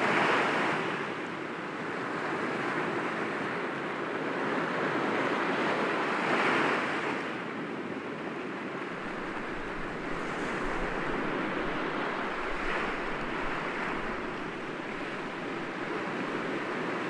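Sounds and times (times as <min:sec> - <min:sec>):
sea waves breaking against rocks: 0:08.8 - 0:17.0.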